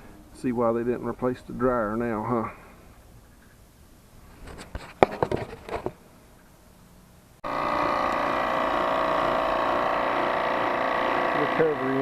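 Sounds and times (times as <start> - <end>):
motor and compressor hum: 7.4 - 12.0.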